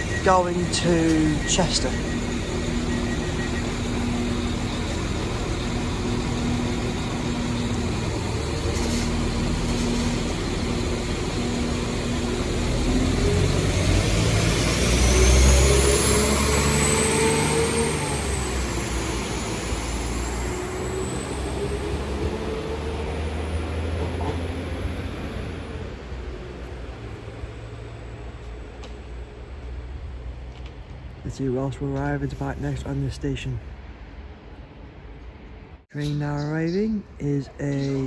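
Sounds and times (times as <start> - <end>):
high whine: 0.0 - 22.5
diesel train engines: 0.0 - 38.0.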